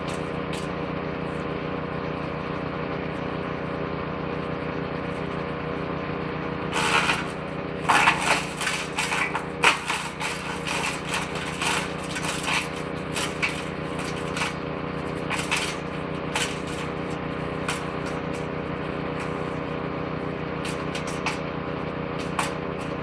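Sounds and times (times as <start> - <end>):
woodchipper engine running: 0.0 - 23.0
branches crunching in shredder: 6.6 - 23.0.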